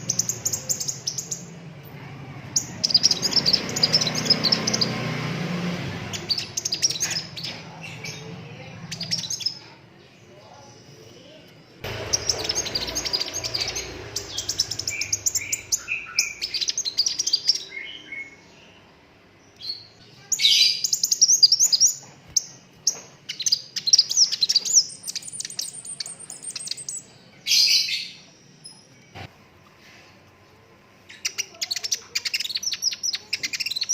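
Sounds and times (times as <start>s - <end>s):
bird singing rapid trills: 0.0s - 1.6s, 2.4s - 9.6s, 11.8s - 28.9s, 31.1s - 33.9s.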